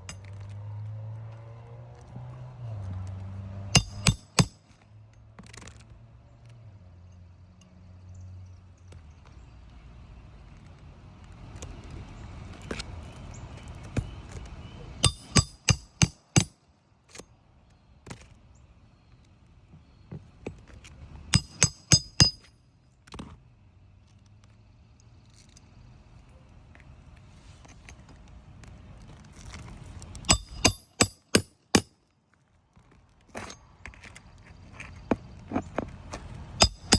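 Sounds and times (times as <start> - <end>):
hammer striking metal: 3.8 - 4.8, 15.0 - 16.6, 21.4 - 22.5, 30.3 - 32.0, 36.6 - 36.9.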